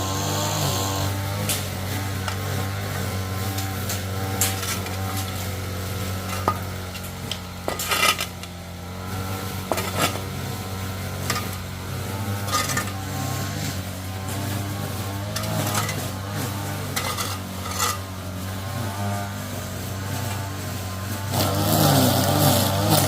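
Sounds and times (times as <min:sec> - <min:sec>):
utensil scraping metal pan: 0:12.4 - 0:13.0, 0:15.3 - 0:16.0, 0:16.9 - 0:18.1.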